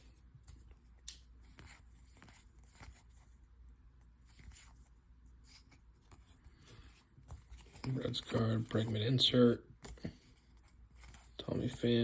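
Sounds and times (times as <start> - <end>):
trading cards rustling: 4.2 - 12.0.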